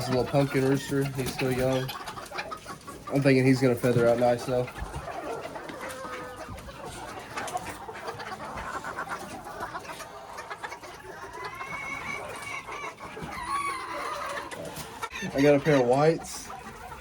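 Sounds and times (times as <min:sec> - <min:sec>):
chickens clucking and calling: 0:00.0 - 0:17.0.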